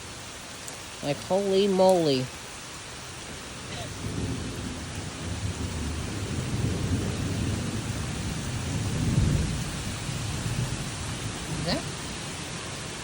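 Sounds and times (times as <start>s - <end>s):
heavy rain falling: 0.0s - 13.0s
low rolling thunder rumble: 3.7s - 12.5s.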